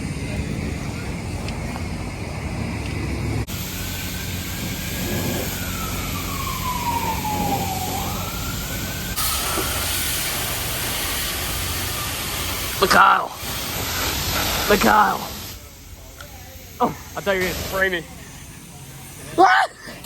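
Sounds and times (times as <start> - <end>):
low engine hum: 0.0 - 9.2
siren wailing: 4.2 - 9.7.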